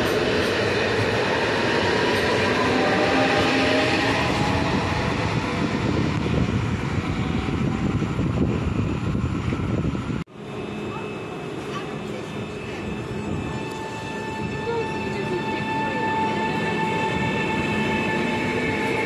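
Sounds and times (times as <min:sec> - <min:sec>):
train wheels rumbling on rail: 0:00.0 - 0:10.2
train whine: 0:00.0 - 0:19.0.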